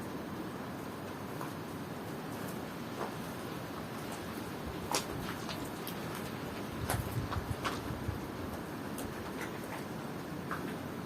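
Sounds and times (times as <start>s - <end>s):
rain falling steadily: 0.0s - 11.0s.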